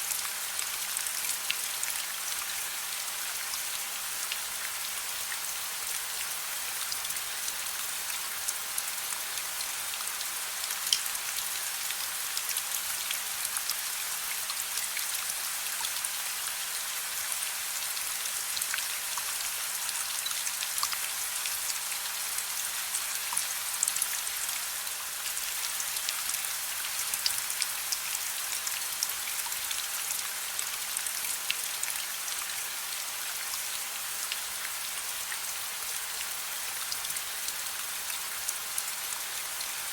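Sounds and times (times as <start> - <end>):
soft rain patter: 0.0 - 39.9.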